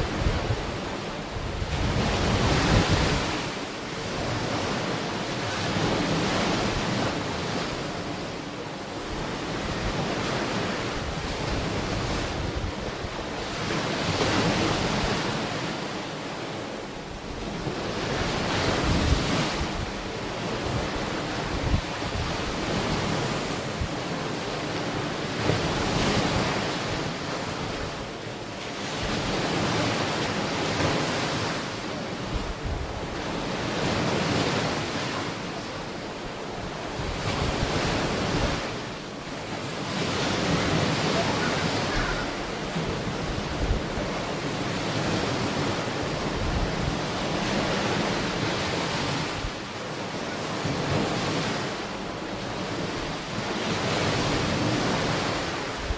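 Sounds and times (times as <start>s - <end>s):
wind buffeting microphone: 0.0s - 3.4s, 17.2s - 24.1s, 32.2s - 34.6s, 40.0s - 44.3s
ocean waves breaking on shore: 0.0s - 55.9s.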